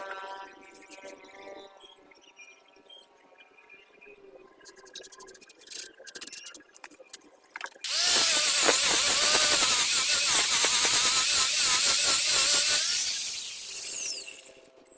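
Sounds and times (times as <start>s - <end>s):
power tool cutting wood: 7.8s - 14.7s.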